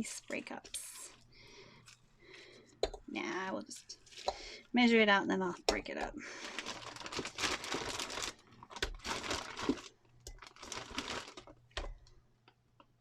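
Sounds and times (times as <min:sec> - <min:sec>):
soap crinkling and crunching: 0:03.7 - 0:04.5, 0:05.7 - 0:12.1.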